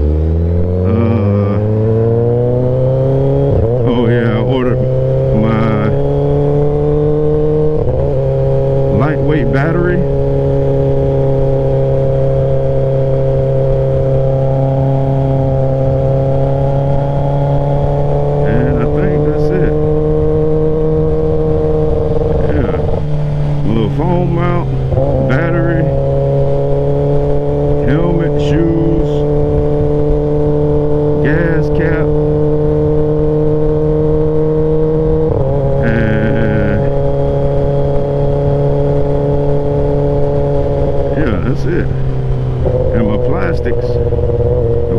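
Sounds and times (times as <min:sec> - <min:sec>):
low wind rumble: 0:00.0 - 0:44.9
motorcycle engine running: 0:00.0 - 0:44.9
brief voice: 0:00.9 - 0:01.7.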